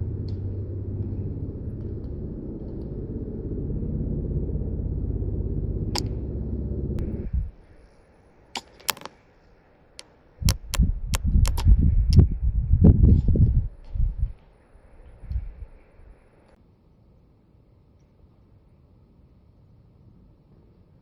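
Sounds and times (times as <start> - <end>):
low thuds: 0.0 - 7.5
wind buffeting microphone: 0.0 - 7.7, 10.4 - 16.2
sharp clicks: 5.9 - 7.1, 10.0 - 11.7.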